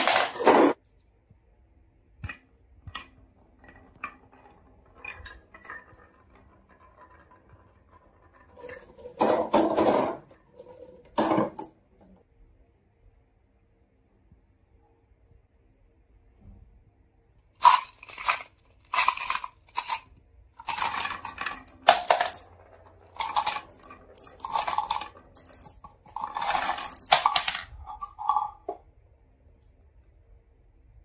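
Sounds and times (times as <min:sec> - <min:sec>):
marbles rolling down wooden run: 0:02.4 - 0:11.8, 0:17.6 - 0:28.9.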